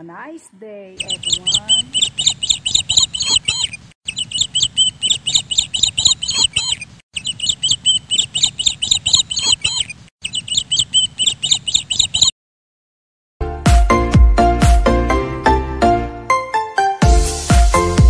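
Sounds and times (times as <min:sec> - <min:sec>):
small birds chirping: 0:00.8 - 0:12.3.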